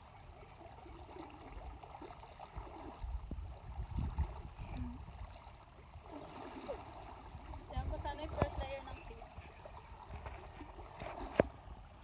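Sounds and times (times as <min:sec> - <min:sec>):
low rumbles on microphone: 0:03.0 - 0:05.3.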